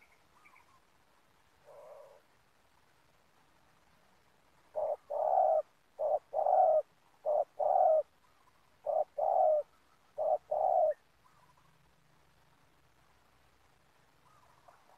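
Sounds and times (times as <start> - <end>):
dove cooing: 1.6 - 2.3, 4.7 - 8.1, 8.8 - 11.7.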